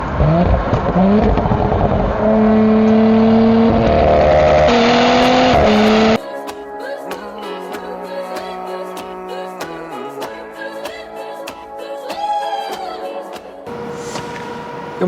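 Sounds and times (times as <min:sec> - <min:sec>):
car engine under load: 0:00.0 - 0:06.2, 0:13.7 - 0:15.0
music: 0:06.2 - 0:14.2.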